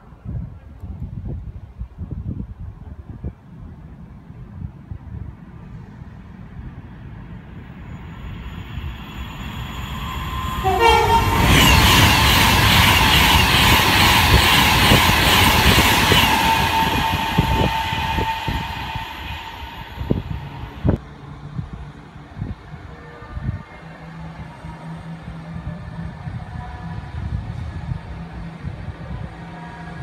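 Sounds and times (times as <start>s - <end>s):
train passing: 3.4s - 30.0s
train horn: 10.0s - 12.3s, 16.1s - 20.7s.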